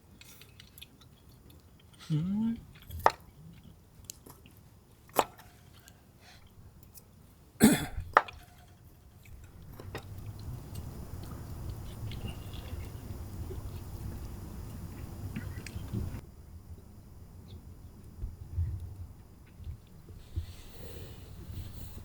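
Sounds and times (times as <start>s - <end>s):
low steady background noise: 0.0s - 22.0s
chewing with sharp clicks: 0.1s - 7.1s, 9.2s - 16.0s.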